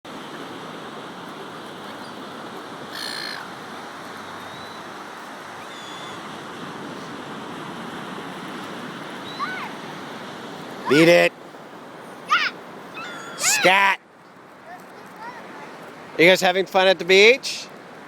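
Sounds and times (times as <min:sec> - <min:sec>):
surf wash: 0:00.1 - 0:18.0
seagulls calling: 0:01.7 - 0:07.2, 0:09.0 - 0:11.3, 0:12.1 - 0:14.0.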